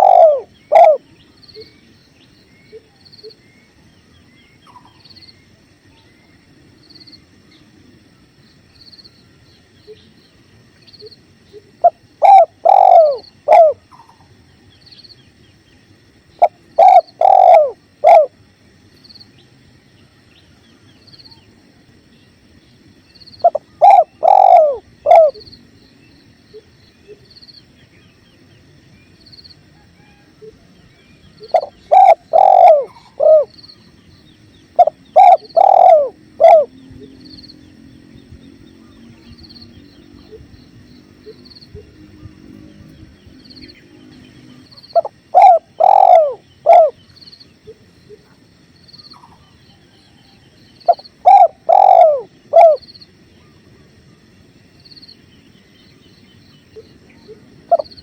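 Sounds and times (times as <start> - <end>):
dove cooing: 0.0 - 1.7, 11.5 - 14.2, 16.4 - 18.4, 23.4 - 25.5, 31.3 - 33.7, 34.7 - 37.4, 44.5 - 47.0, 49.2 - 52.9, 56.7 - 58.0.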